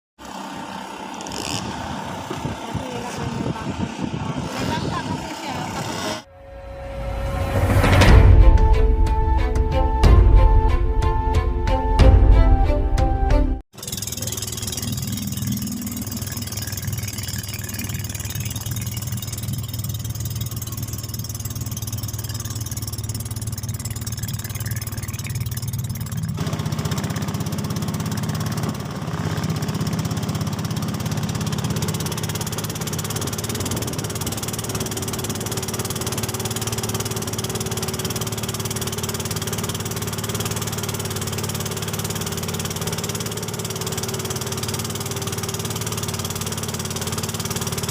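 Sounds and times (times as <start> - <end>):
small boat engine running: 0.2 - 47.9
loud rushing noise: 6.0 - 9.5.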